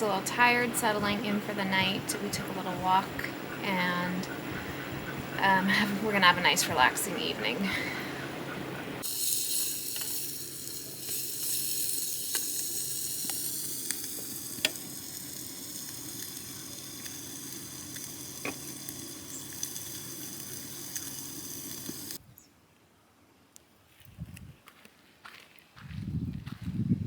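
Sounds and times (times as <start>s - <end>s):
rain falling: 4.4s - 22.2s
sharp ticks: 9.0s - 22.2s.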